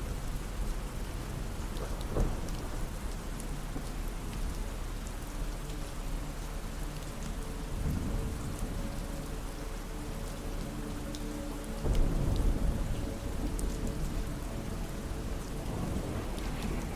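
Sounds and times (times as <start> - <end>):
low rumble of thunder: 0.0 - 5.0, 7.7 - 9.0, 11.8 - 16.9
steady rain falling: 0.0 - 16.9.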